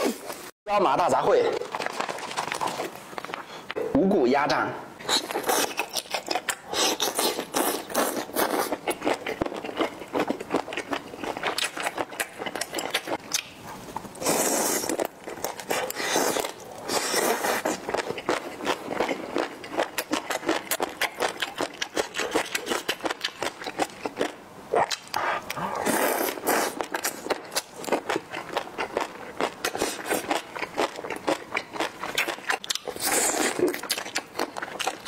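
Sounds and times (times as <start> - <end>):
wet chewing and crunching: 1.5 - 3.5, 5.0 - 35.0
slurping food: 25.2 - 27.3.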